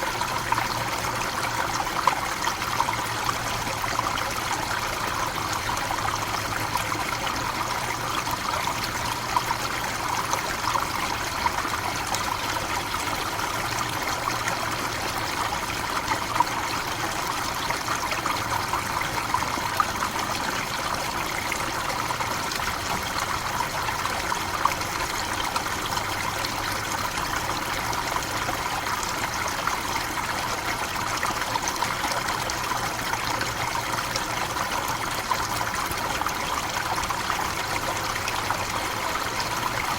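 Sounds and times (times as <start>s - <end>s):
small water splashes: 0.0s - 39.9s.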